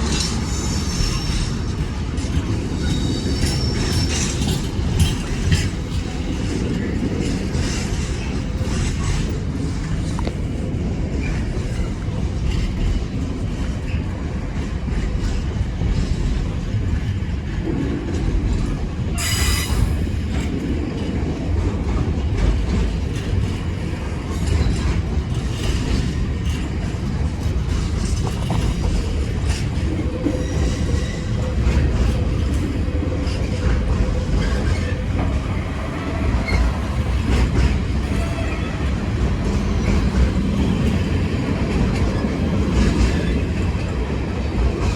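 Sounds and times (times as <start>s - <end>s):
train rumbling: 0.0s - 44.9s
wheels clattering over rail joints: 0.0s - 44.9s
high-pitched wheel squeal: 19.2s - 20.0s.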